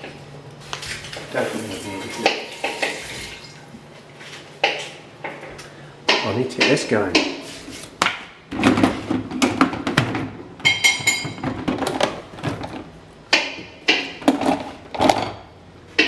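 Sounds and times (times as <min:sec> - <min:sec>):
kitchen knocks and clicks: 0:06.1 - 0:07.4, 0:08.1 - 0:15.4.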